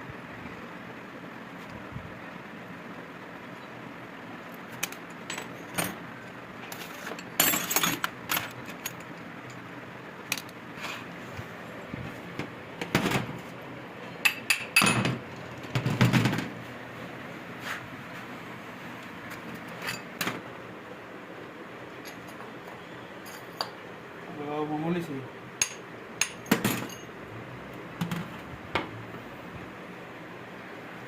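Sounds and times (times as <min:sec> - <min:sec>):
metal parts clinking and clattering: 0:04.8 - 0:06.0, 0:06.6 - 0:09.6, 0:19.6 - 0:20.4, 0:25.6 - 0:27.2.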